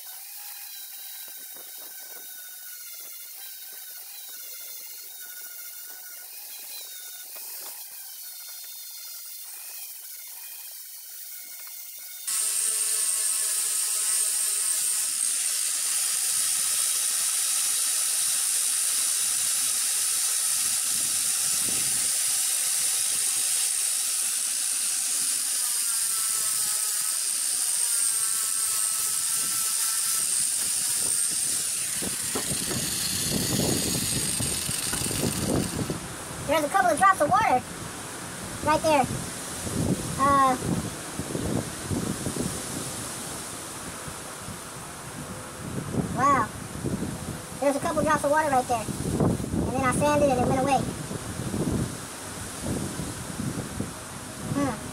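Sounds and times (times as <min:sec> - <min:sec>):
power sander running: 0:00.0 - 0:36.8.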